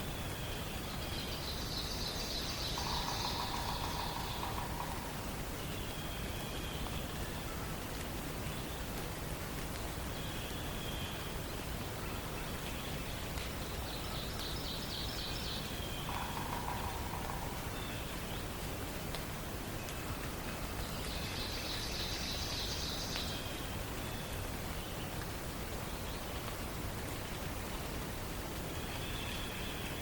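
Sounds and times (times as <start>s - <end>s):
forest background hiss: 0.0s - 30.0s
songbirds calling: 0.1s - 7.8s.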